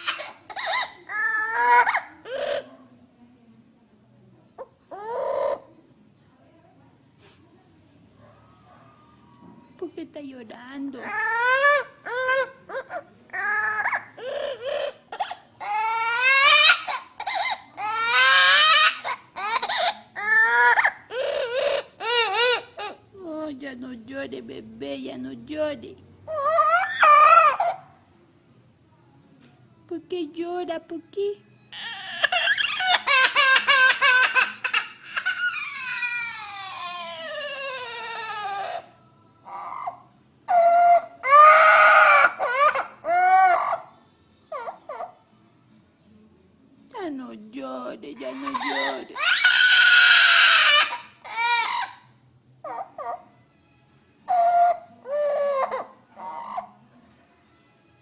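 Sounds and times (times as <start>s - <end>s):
bird mimicking sobbing cries: 0.0s - 2.8s, 4.6s - 5.7s, 10.9s - 23.1s, 26.3s - 28.0s, 31.7s - 45.3s, 48.1s - 53.4s, 54.2s - 56.8s.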